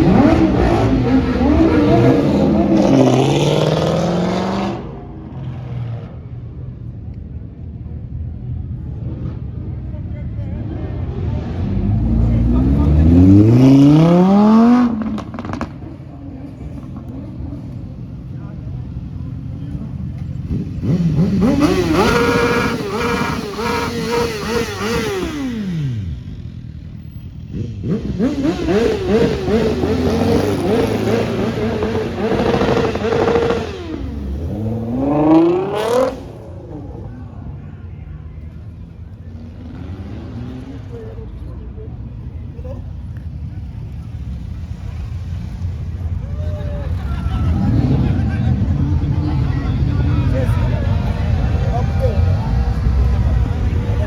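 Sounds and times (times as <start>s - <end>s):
car engine revving: 0.0s - 6.1s, 10.8s - 17.9s, 19.2s - 37.2s, 38.6s - 41.5s, 47.0s - 54.0s.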